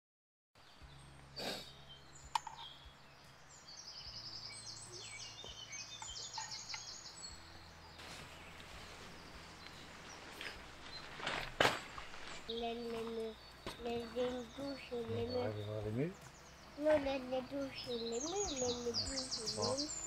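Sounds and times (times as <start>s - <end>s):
faint woodland background noise: 0.6s - 20.0s
songbird singing high notes: 12.5s - 20.0s.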